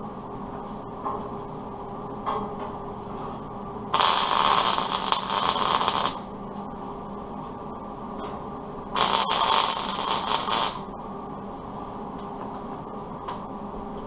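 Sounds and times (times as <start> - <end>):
welding machine hum: 3.9 - 6.3, 9.0 - 11.0
welding crackling hiss: 4.0 - 6.3, 9.0 - 10.9.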